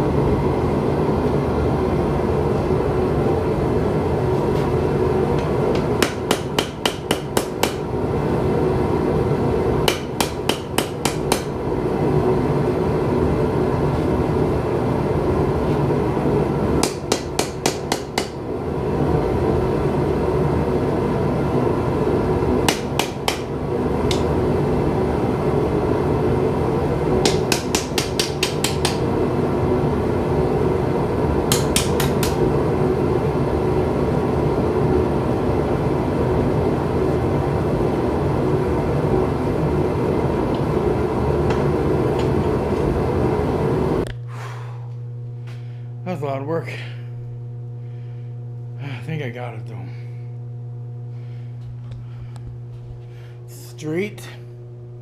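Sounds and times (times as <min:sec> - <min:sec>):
forge burner roar: 0:00.0 - 0:55.0.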